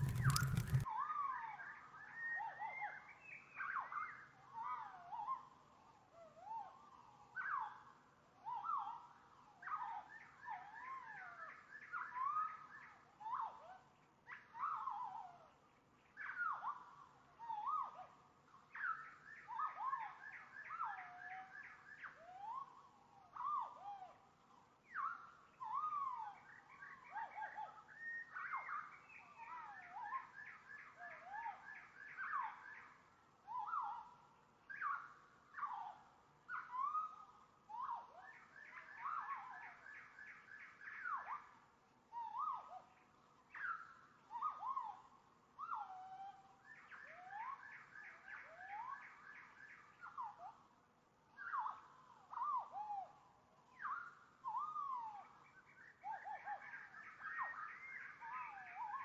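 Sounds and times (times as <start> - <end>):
bird trills: 0.0 - 0.9.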